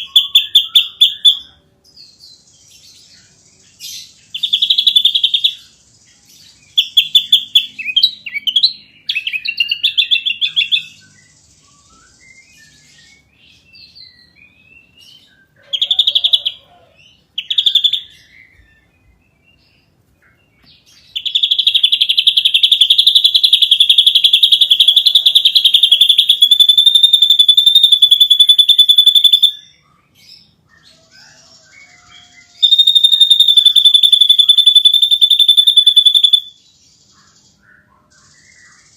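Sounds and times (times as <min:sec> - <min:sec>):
bird singing and trilling: 0:00.0 - 0:38.9.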